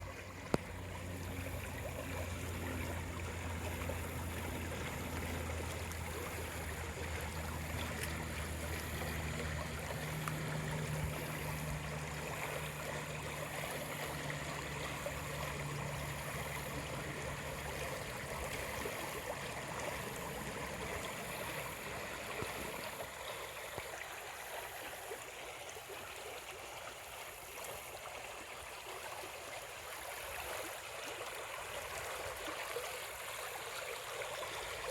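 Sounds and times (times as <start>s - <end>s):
low motor hum: 0.0s - 24.4s.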